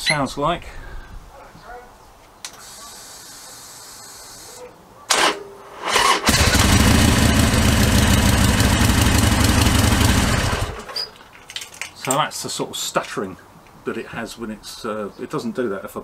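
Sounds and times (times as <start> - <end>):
starter motor stuttering: 5.9 - 10.9
motorcycle engine running: 6.3 - 10.9.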